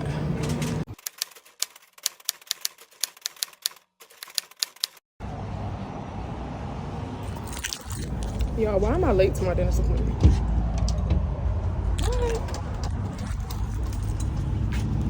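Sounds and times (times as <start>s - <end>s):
rapid sharp clicks: 0.9s - 5.0s
steady low rumble: 5.2s - 15.0s.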